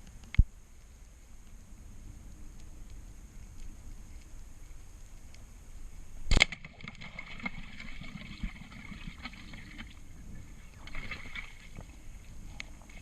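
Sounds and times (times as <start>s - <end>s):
underwater clicks and crackles: 0.0s - 13.0s
underwater rumble: 0.0s - 13.0s.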